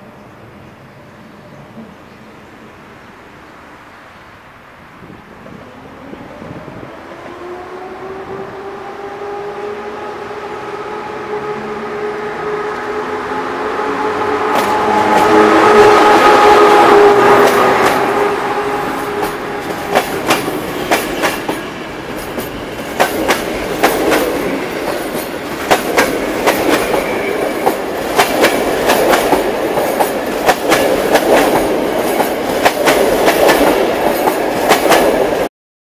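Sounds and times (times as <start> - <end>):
train wheels clacking over rail joints: 18.9 - 35.5.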